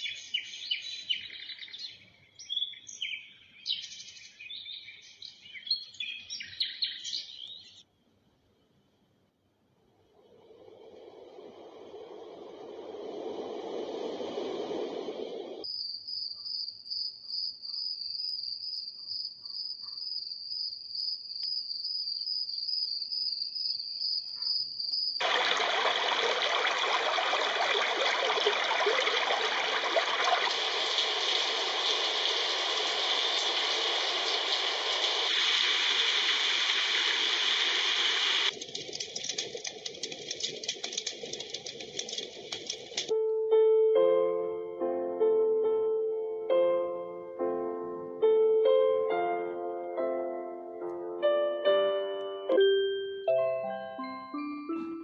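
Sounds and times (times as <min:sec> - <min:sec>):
steady rushing noise: 0:10.0 - 0:15.6
coarse crackling noise: 0:25.2 - 0:43.1.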